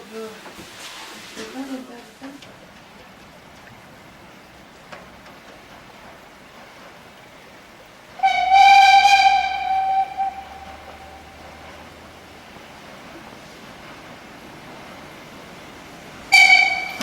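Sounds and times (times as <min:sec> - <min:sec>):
train whistle: 0:08.2 - 0:11.8, 0:16.3 - 0:17.0.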